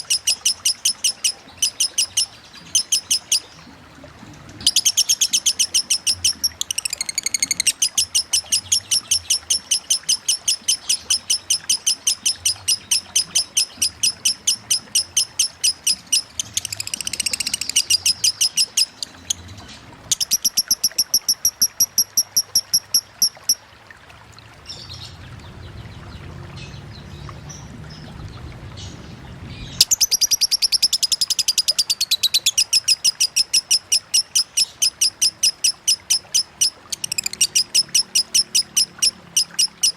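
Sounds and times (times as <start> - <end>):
bird chattering high chirps: 0.0 - 3.5, 4.6 - 19.0, 20.1 - 23.6, 29.8 - 39.9
running water: 0.0 - 39.9.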